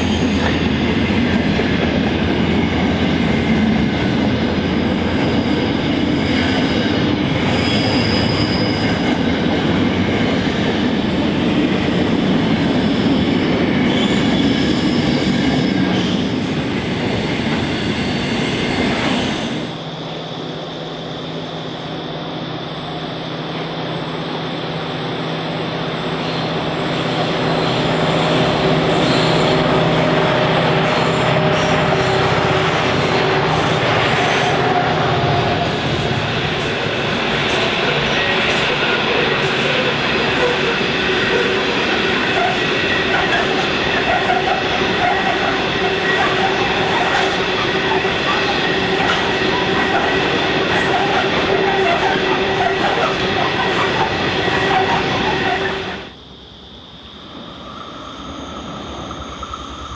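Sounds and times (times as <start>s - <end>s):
high wheel squeals: 0.0s - 9.6s, 12.8s - 16.3s, 23.9s - 35.8s
diesel locomotive hum: 0.0s - 14.5s, 15.2s - 59.9s
train wagons rumbling: 0.0s - 19.2s, 26.4s - 56.1s.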